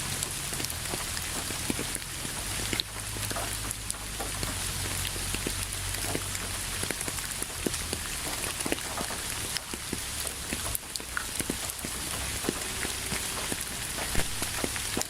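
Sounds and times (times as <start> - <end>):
low steady rumble: 0.0 - 15.0
raindrops ticking close by: 0.0 - 15.0
steady rain falling: 0.0 - 15.0.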